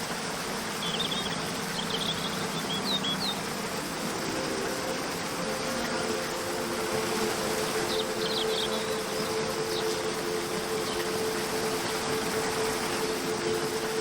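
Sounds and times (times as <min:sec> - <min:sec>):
soft background music: 0:00.0 - 0:14.0
waterfall rushing: 0:00.0 - 0:14.0
bird chirps: 0:07.6 - 0:12.3.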